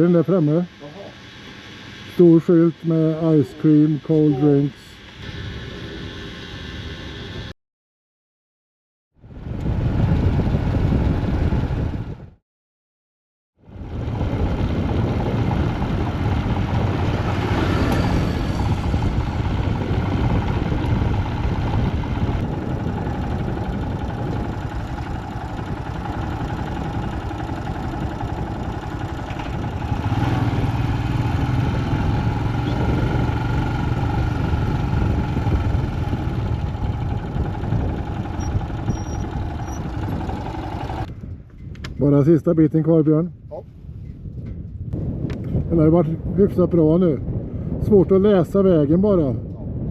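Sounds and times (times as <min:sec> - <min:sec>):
wind and road noise: 0:00.0 - 0:07.6, 0:09.2 - 0:12.4, 0:13.6 - 0:49.9
motorcycle engine running: 0:09.2 - 0:12.4, 0:13.6 - 0:41.6.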